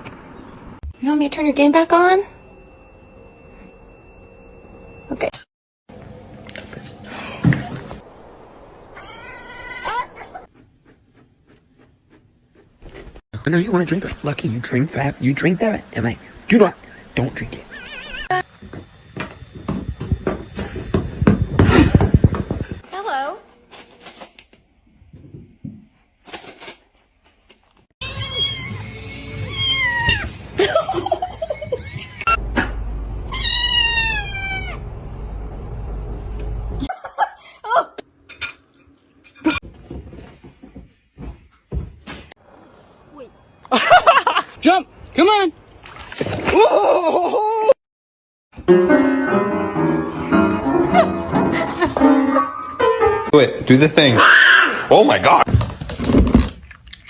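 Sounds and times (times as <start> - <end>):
low hum: 1.6 - 5.4, 32.3 - 36.9
cat meowing: 9.0 - 10.0, 17.7 - 18.4, 28.0 - 30.4, 33.3 - 34.8
rustling: 22.3 - 24.6.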